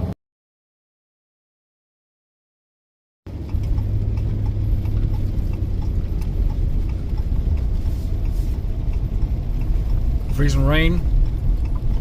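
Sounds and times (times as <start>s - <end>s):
light regular ticking: 3.3s - 12.0s
vehicle engine and road noise: 3.3s - 12.0s.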